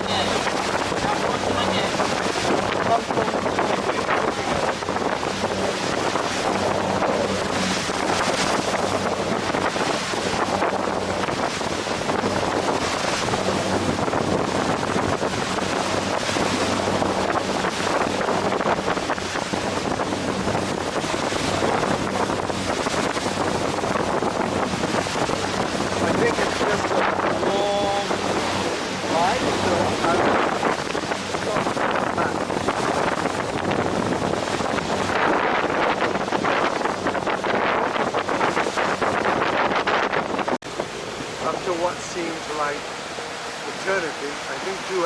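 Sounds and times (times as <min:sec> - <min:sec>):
ferry engine droning: 0:00.0 - 0:24.8
water rushing against hull: 0:00.0 - 0:45.0
wind buffeting microphone: 0:00.0 - 0:45.0.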